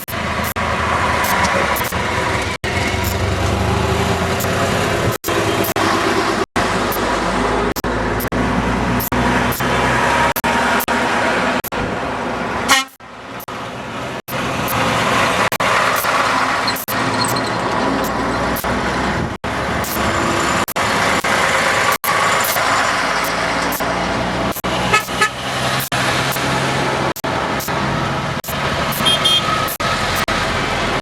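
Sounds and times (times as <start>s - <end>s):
truck engines droning: 0.0s - 31.0s
truck horns tooting: 12.6s - 13.0s, 24.6s - 25.8s, 28.9s - 30.0s.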